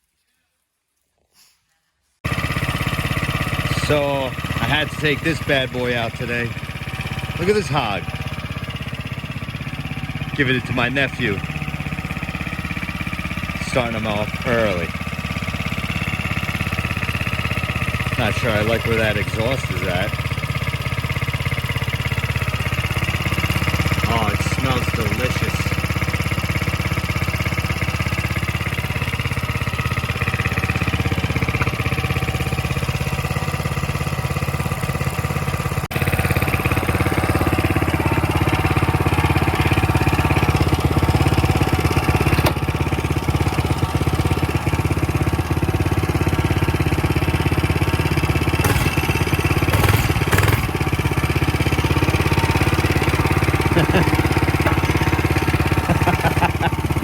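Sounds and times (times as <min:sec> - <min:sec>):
mini bike engine running: 0:02.2 - 0:57.0.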